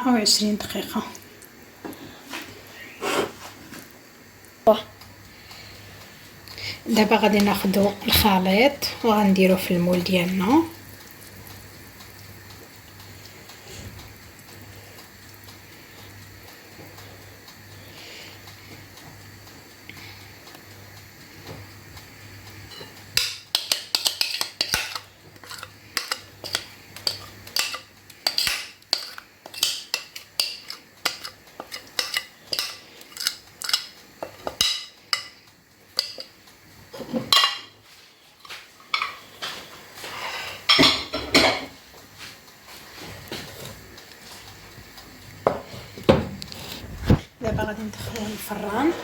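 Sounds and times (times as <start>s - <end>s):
utensil scraping a bowl and pan: 22.7s - 35.4s.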